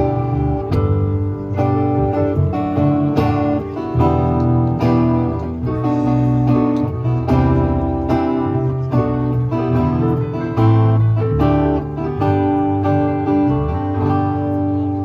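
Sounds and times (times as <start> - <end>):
bass: 0.0 - 15.0
cajon beat: 0.0 - 15.0
guitar strumming chords: 0.0 - 15.0
keyboard: 0.0 - 15.0.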